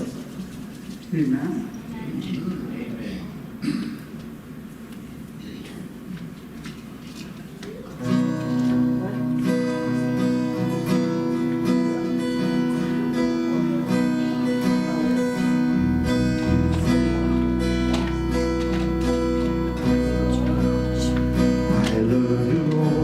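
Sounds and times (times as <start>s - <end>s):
bass guitar: 8.0s - 23.0s
strummed acoustic guitar: 8.0s - 23.0s.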